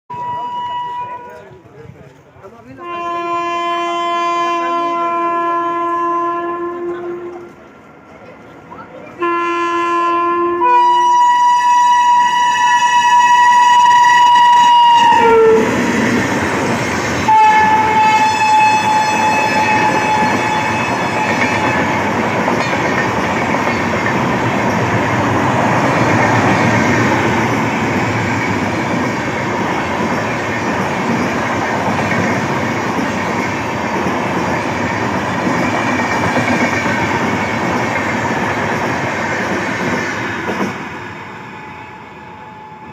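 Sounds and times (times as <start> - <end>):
train horn blasts: 0.1 - 1.4, 2.8 - 7.6, 9.2 - 15.8, 17.3 - 22.0
train clattering on rails: 13.3 - 41.1.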